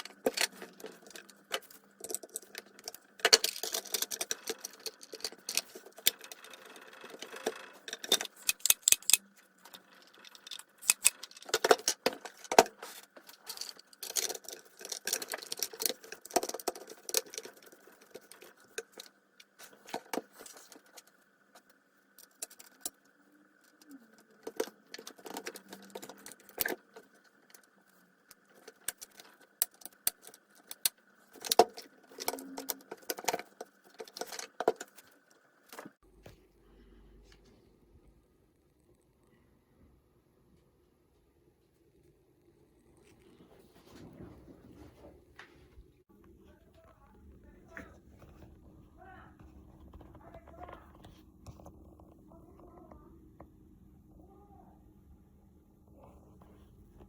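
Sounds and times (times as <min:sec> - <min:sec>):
metal parts and tools clinking: 0:00.0 - 0:21.2, 0:23.6 - 0:36.0.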